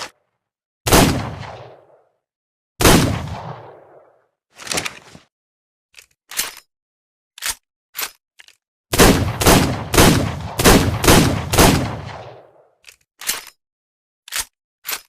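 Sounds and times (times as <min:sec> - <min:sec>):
revolver gunshots: 0:00.9 - 0:02.0, 0:02.8 - 0:04.1, 0:08.9 - 0:12.6.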